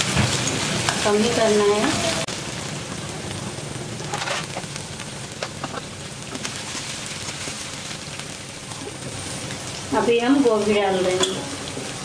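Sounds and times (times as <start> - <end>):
paste sizzling in hot oil: 0.0 - 12.0
short crackles: 3.9 - 8.8
metal spatula scraping: 4.0 - 4.7.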